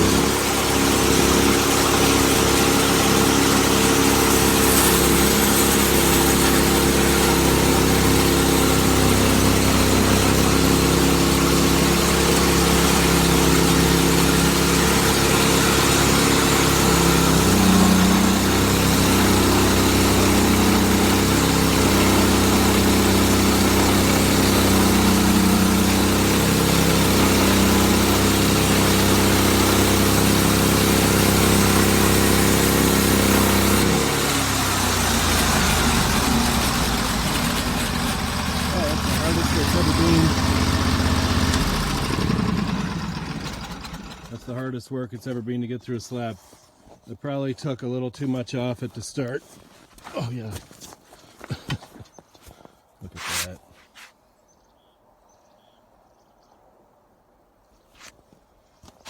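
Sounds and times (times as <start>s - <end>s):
sawmill engine labouring: 0.0s - 44.8s.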